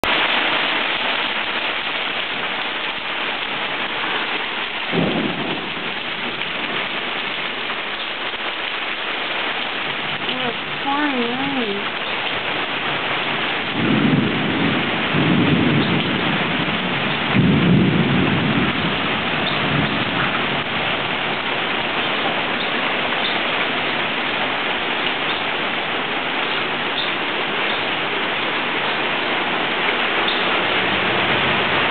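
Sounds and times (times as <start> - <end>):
heavy rain falling: 0.0 - 31.9
thunder rumbling: 3.9 - 7.8, 13.3 - 23.1, 28.0 - 31.9.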